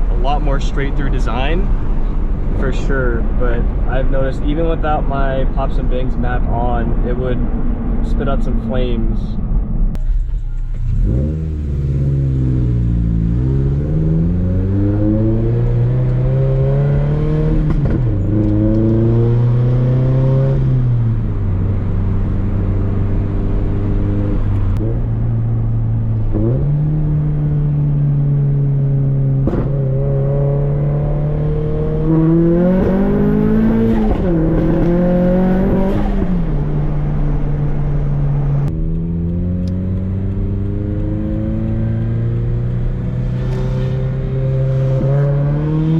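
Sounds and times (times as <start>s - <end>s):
car engine accelerating through gears: 9.9s - 45.9s
exhaust pops: 29.3s - 30.2s.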